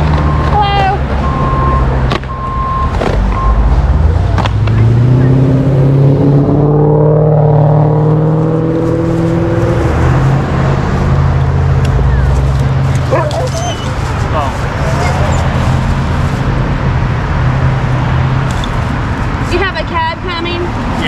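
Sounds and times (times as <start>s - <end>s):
vehicle engines droning: 0.0s - 21.0s
engine accelerating: 2.6s - 18.5s.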